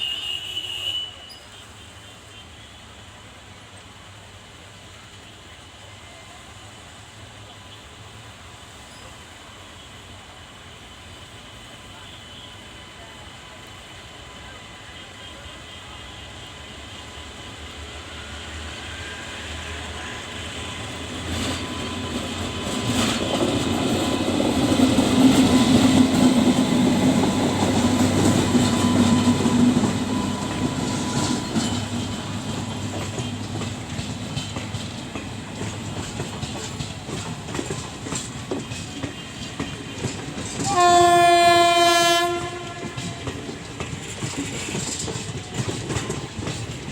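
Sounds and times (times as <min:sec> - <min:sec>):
train horn: 0:00.0 - 0:02.9, 0:39.0 - 0:43.5
train rumbling past: 0:03.0 - 0:46.9
wheels clattering over rail joints: 0:42.4 - 0:46.9.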